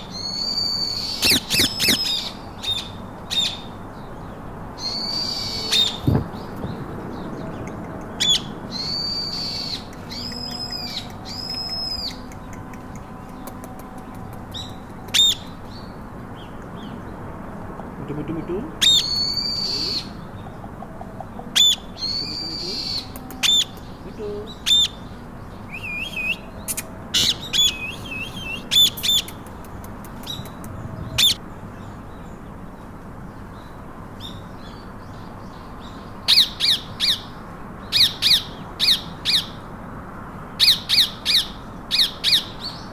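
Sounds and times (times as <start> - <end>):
parakeets squawking: 0.0 - 3.7, 17.9 - 25.1
sharp bird shrieks: 0.1 - 3.6, 18.8 - 20.2.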